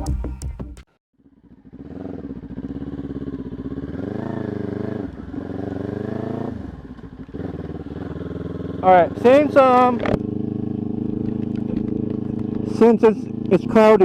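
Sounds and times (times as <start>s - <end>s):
intro music: 0.0s - 0.9s
motorcycle engine revving: 1.2s - 14.0s.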